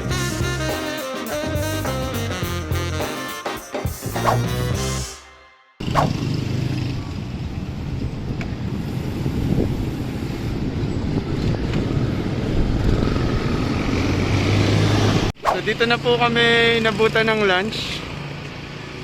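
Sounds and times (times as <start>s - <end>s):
road traffic rumbling: 5.8s - 19.0s.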